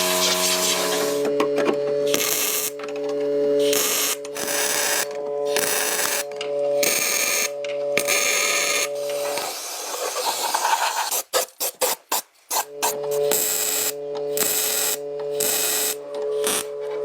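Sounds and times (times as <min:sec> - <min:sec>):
hissing noise: 0:00.0 - 0:01.2, 0:12.5 - 0:16.8
small motor humming: 0:00.0 - 0:10.6, 0:12.7 - 0:17.0.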